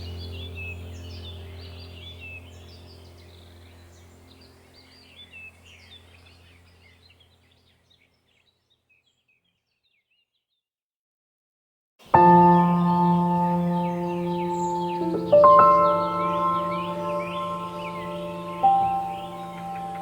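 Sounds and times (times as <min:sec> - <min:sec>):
low steady drone: 0:00.0 - 0:06.8, 0:12.2 - 0:20.0
birds chirping: 0:00.0 - 0:10.4, 0:12.0 - 0:20.0.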